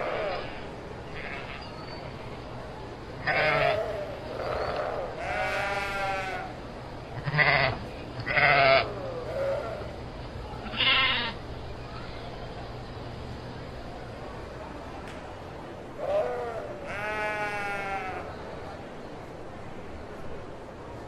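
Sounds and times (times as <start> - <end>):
sheep bleating: 3.2 - 6.5, 7.2 - 9.8, 16.0 - 18.3.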